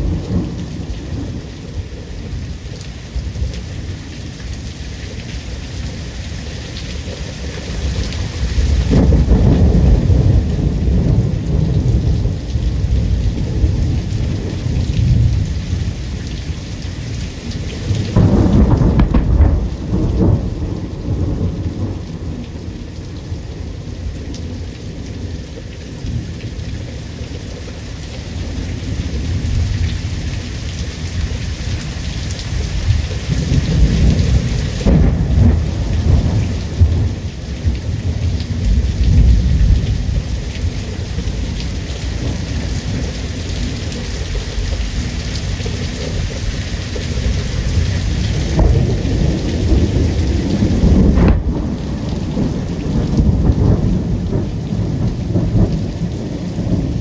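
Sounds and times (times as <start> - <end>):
heavy rain falling: 0.0 - 57.0
thunder rolling: 8.6 - 15.9, 18.0 - 23.1, 32.8 - 40.3, 48.0 - 57.0
sharp thunderclap: 8.7 - 14.4, 18.1 - 22.4, 33.3 - 37.2, 48.4 - 57.0.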